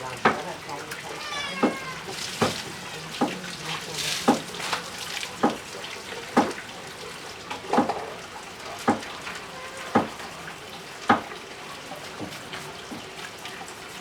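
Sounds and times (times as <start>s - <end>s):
sharp knocks: 6.4s - 6.6s, 9.9s - 10.1s.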